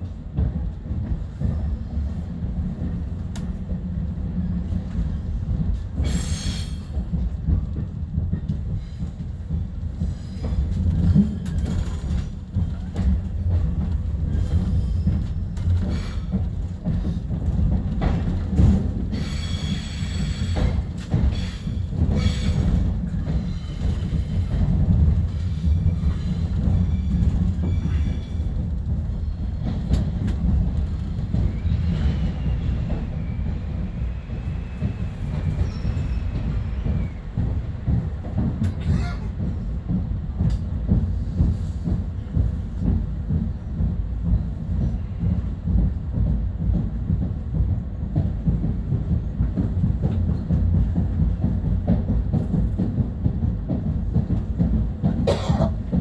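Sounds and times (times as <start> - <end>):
rail clicks: 0.0 - 56.0
train wheels rumbling on rail: 0.0 - 56.0
wheel squeal: 35.3 - 37.2.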